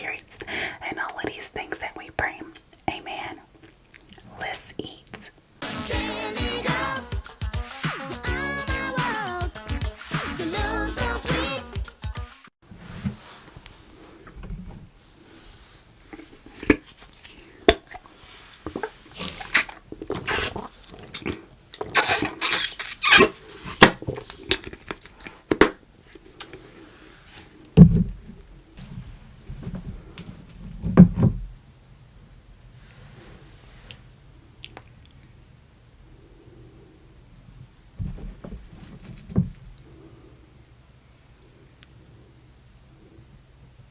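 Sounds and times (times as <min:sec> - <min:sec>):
slime squishing: 0:15.6 - 0:25.8.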